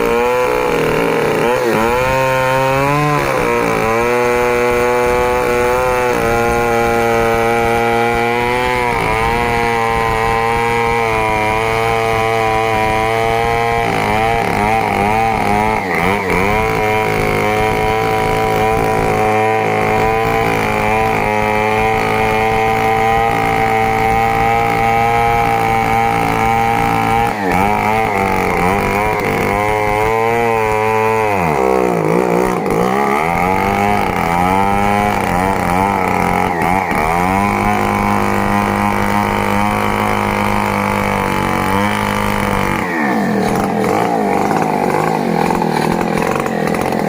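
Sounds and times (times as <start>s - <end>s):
chainsaw cutting wood: 0.0s - 47.0s.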